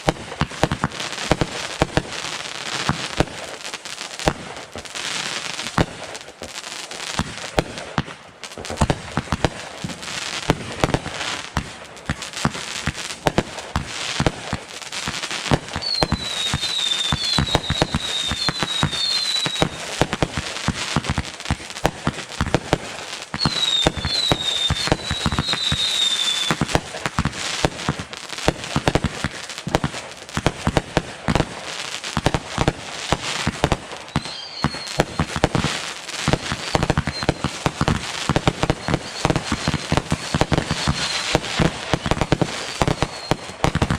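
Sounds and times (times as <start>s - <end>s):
fireworks crackling and banging: 0.0s - 43.9s
falling firework whistles: 15.0s - 29.8s, 31.3s - 43.9s.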